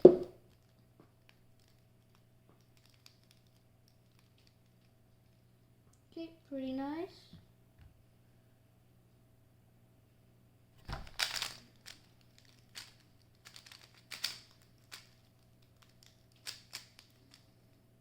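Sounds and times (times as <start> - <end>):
plastic cube clicking: 11.1 - 17.4.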